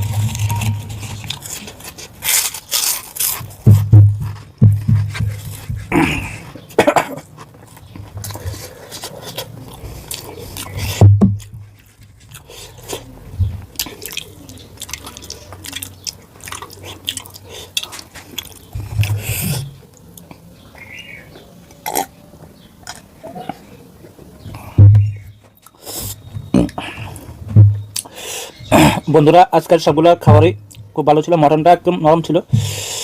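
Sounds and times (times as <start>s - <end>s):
close chewing with wet clicks: 7.4s - 19.2s, 25.6s - 27.3s.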